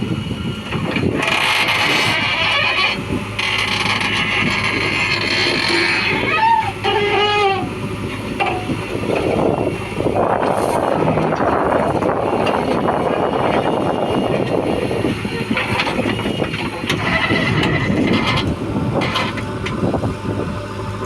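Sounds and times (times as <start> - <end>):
diesel engine running: 0.0 - 21.0
brief squeal: 5.7 - 7.7.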